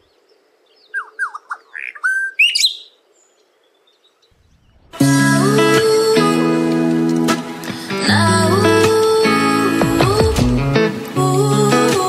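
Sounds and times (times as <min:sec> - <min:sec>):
bird chirping: 0:00.0 - 0:05.0
plucked guitar music: 0:05.0 - 0:12.0.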